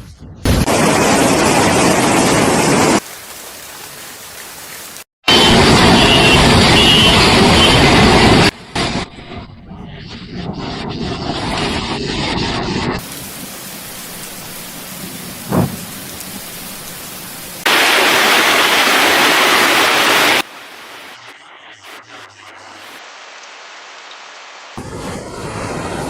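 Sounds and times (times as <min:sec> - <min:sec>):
storm and floodwater hiss: 0:00.6 - 0:09.1, 0:12.4 - 0:26.0
thump: 0:15.5 - 0:15.8.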